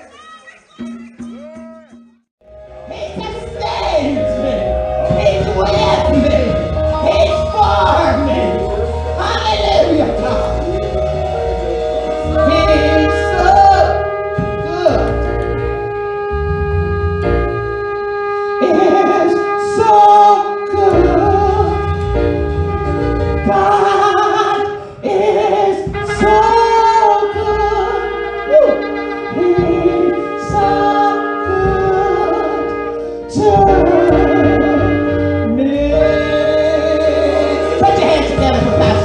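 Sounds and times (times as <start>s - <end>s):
sustained instrumental chords: 0.8s - 39.0s
person singing: 18.3s - 22.1s, 23.3s - 39.0s.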